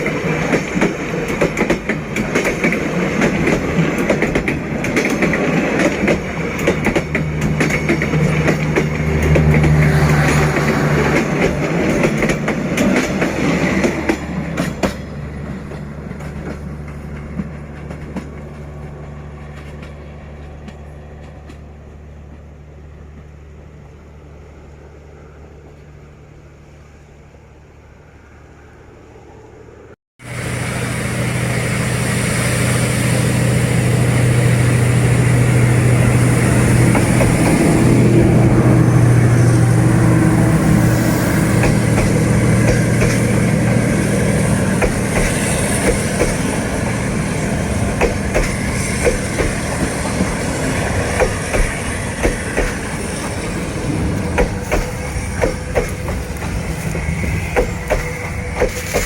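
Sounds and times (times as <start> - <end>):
train wheels clacking over rail joints: 0.0 - 18.8, 34.9 - 38.3, 40.6 - 59.0
locomotive engine drone: 0.0 - 59.0.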